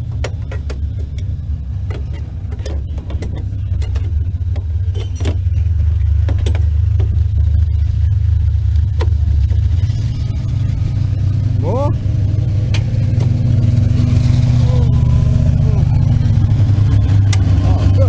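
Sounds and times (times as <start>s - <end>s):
knocks and rattles: 0.0s - 14.6s
low vehicle rumble: 0.0s - 18.0s.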